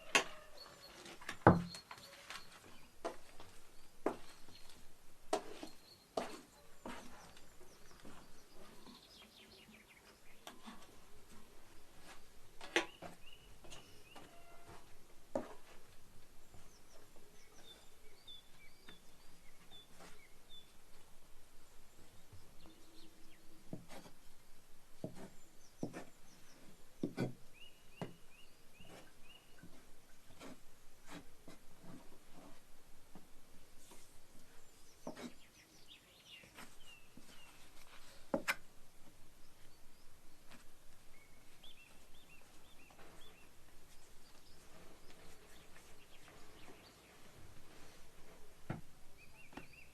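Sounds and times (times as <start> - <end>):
bird chirping: 0.0 - 4.8, 12.6 - 14.9, 16.4 - 20.8, 27.5 - 30.4, 41.1 - 47.3, 49.2 - 49.9
small birds chirping: 0.0 - 24.3, 25.0 - 31.2, 33.8 - 49.9.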